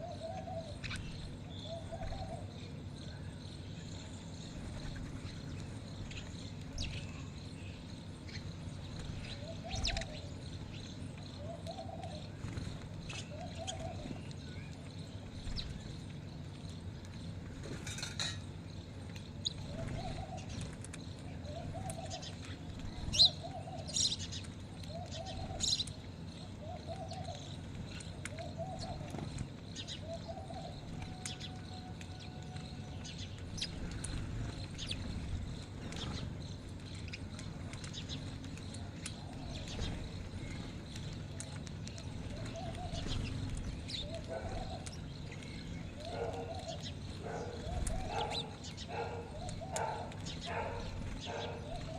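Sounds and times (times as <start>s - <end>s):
dove cooing: 0.0s - 2.8s, 9.0s - 10.6s, 11.2s - 14.2s, 19.6s - 25.8s, 26.4s - 32.9s, 38.0s - 51.9s
birds chirping: 0.0s - 51.9s.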